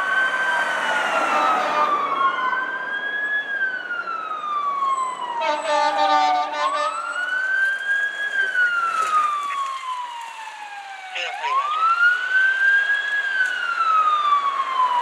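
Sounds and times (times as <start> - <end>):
emergency sirens wailing: 0.0 - 15.0.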